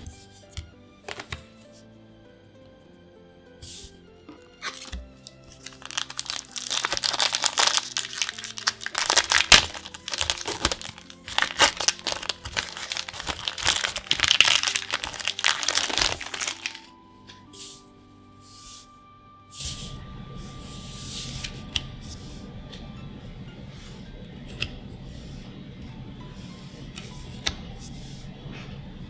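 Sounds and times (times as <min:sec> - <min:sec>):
quiet background music: 0:00.0 - 0:29.0
foil wrapper crinkling and tearing: 0:04.6 - 0:16.9.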